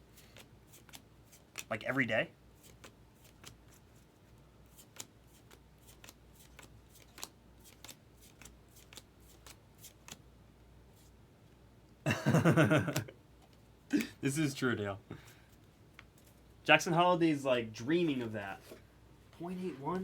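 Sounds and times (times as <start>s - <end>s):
cards being flipped: 0.1s - 1.7s, 2.6s - 3.8s, 4.7s - 10.2s
person speaking: 16.7s - 18.8s, 19.4s - 20.0s.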